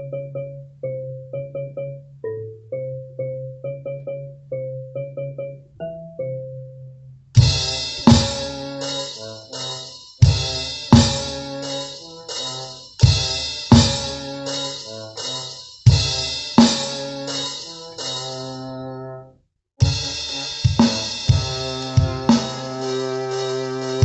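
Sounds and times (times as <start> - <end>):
sustained bass and keyboard: 0.0 - 19.1, 19.8 - 24.0
bass drum and cymbal hits: 7.4 - 18.4, 19.8 - 24.0.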